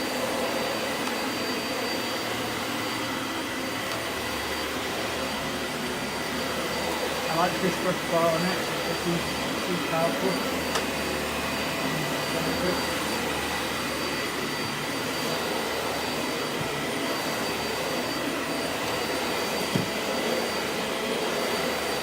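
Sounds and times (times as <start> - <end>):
upright vacuum cleaner on carpet: 0.0 - 22.0.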